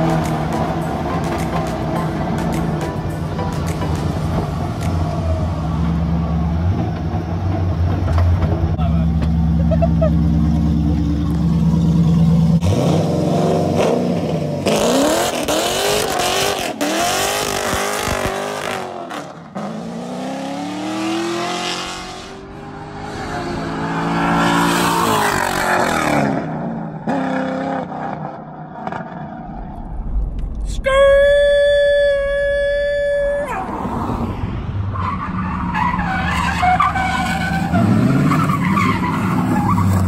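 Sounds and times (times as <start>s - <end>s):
car engine revving: 9.2s - 30.5s.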